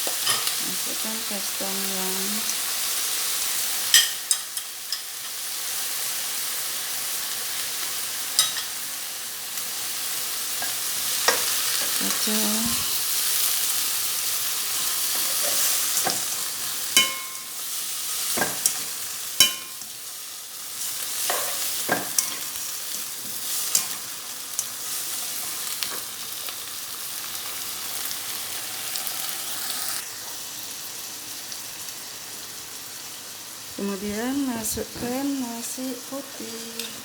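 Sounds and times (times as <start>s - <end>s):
spatula clinking against pan: 8.4s - 8.8s, 16.9s - 17.6s, 18.4s - 19.9s.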